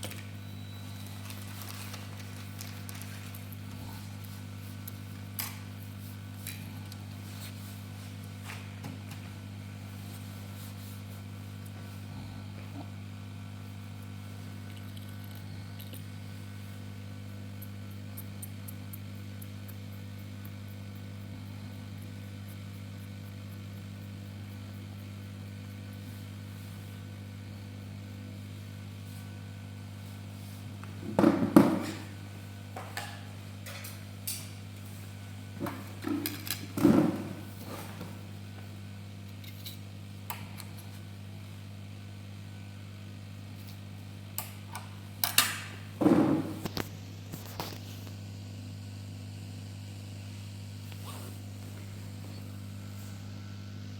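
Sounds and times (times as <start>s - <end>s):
low hum of bench equipment: 0.0s - 53.9s.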